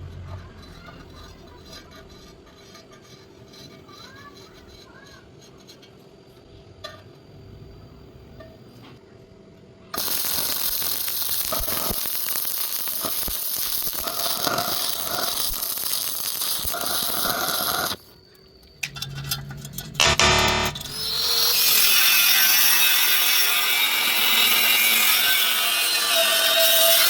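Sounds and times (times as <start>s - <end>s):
arc welding crackle: 10.0s - 18.2s, 18.8s - 27.0s.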